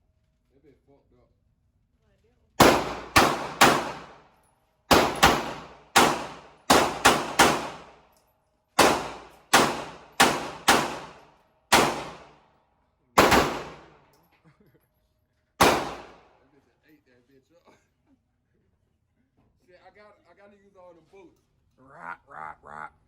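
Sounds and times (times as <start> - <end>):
gunshots with ringing: 2.6 - 4.2, 4.9 - 8.0, 8.8 - 12.4, 13.2 - 14.0, 15.6 - 16.3.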